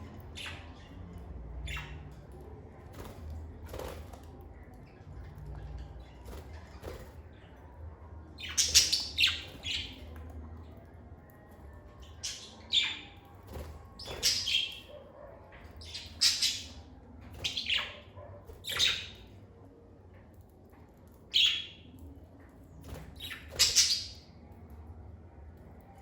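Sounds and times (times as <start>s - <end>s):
lovebirds chirping and squawking: 0.0s - 2.4s, 8.4s - 10.2s, 12.0s - 19.4s, 21.3s - 21.9s, 23.0s - 24.4s
faint low hum: 0.0s - 26.0s.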